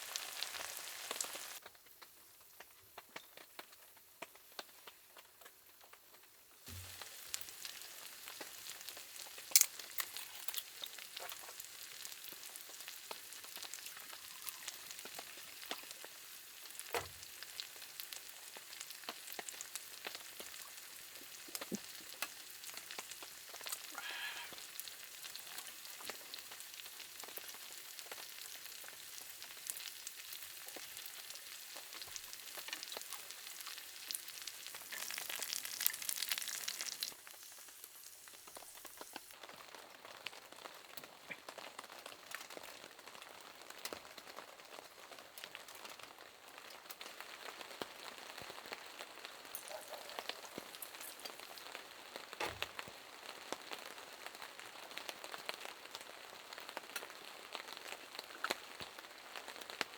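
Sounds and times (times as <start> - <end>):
food sizzling in a pan: 0.0 - 1.7, 2.3 - 59.9
rain pattering: 0.0 - 59.9
water drips: 49.5 - 51.8.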